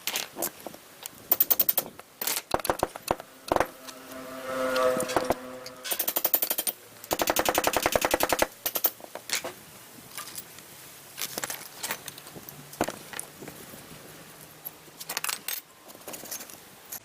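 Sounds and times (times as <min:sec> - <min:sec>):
metallic clicks of parts handled: 0:00.0 - 0:03.2, 0:05.8 - 0:10.6, 0:14.6 - 0:17.0
power impact tool hammering: 0:02.5 - 0:03.7, 0:05.2 - 0:08.9.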